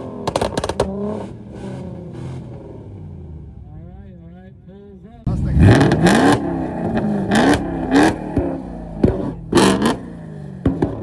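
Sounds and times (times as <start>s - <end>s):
exhaust backfire bangs and pops: 0.0s - 1.2s, 5.3s - 11.0s
car engine revving: 0.0s - 4.0s, 4.6s - 11.0s.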